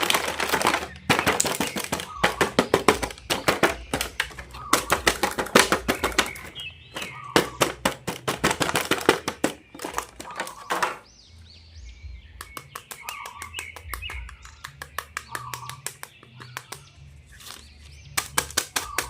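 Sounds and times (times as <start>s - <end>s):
plastic packaging clicks: 0.0s - 11.0s
high chirping sounds: 0.0s - 19.0s.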